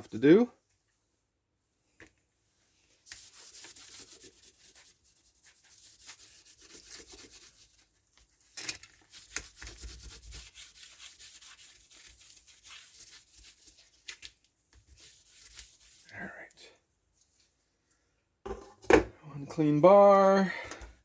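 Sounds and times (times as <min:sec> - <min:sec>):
cloth scrubbing a chainsaw bar: 0:02.4 - 0:17.5.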